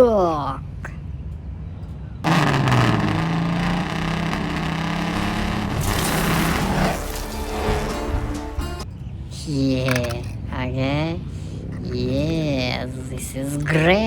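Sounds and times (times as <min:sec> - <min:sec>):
car engine running loudly: 0:02.2 - 0:08.8.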